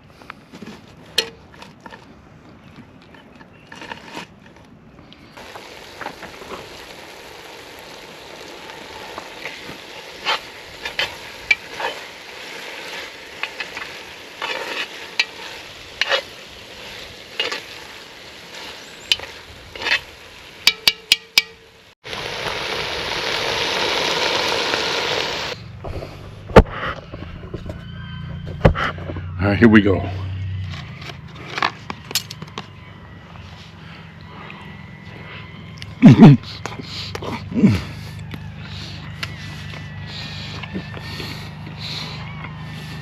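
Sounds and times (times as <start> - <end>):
meat sizzling in a pot: 5.4 - 25.6.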